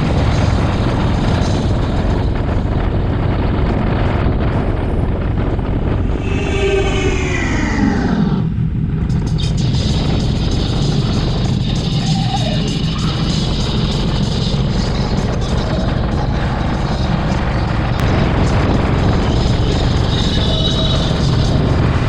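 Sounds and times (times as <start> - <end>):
wind noise on microphone: 0.0 - 22.0
falling pitched tone: 6.0 - 8.8.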